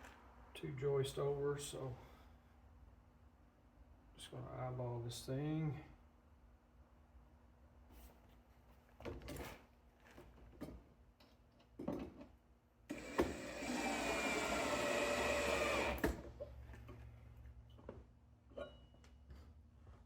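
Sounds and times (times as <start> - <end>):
small electric power tool running: 12.9 - 16.2.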